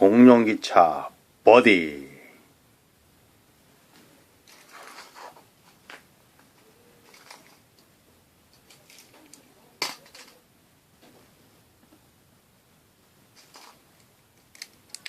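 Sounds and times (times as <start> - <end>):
toys clicking and rustling: 4.4 - 7.9, 8.5 - 10.4, 13.4 - 15.0.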